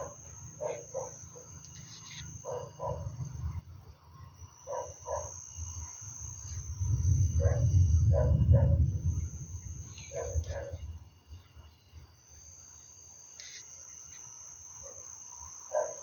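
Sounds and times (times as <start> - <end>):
frogs croaking: 0.0 - 12.1, 12.7 - 16.0
high insect trill: 0.0 - 16.0
low rumble: 6.6 - 11.1.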